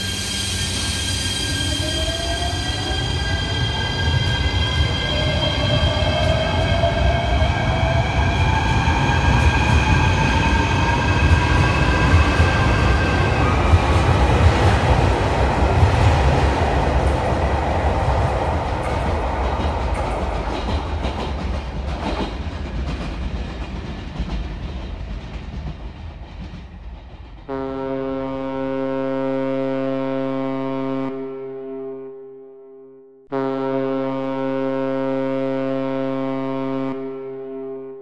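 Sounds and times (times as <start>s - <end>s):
electric train running on track: 0.0s - 27.9s
ferry horn blast: 27.5s - 37.9s.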